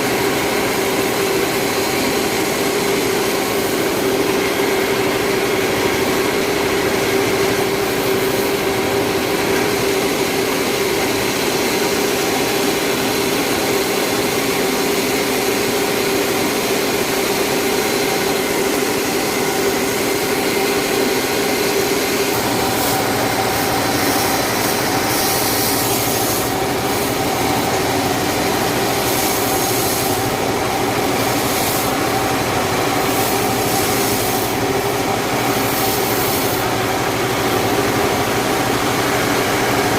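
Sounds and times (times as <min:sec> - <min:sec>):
sawmill saw cutting log: 0:00.0 - 0:39.9
harsh high hiss of blade: 0:21.6 - 0:27.2, 0:28.9 - 0:30.3, 0:31.2 - 0:32.1, 0:32.9 - 0:36.8.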